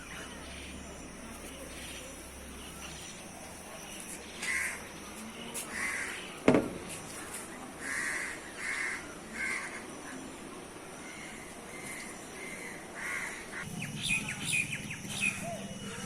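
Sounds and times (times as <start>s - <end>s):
crow cawing: 5.7s - 6.3s, 7.8s - 9.8s, 12.5s - 13.6s
sharp knock: 6.4s - 6.9s.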